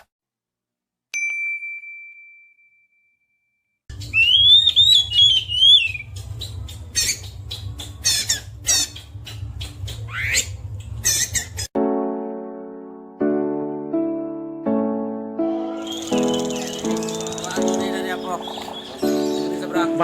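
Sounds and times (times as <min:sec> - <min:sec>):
songbirds chirping and warbling: 0:04.0 - 0:11.5, 0:15.5 - 0:20.0.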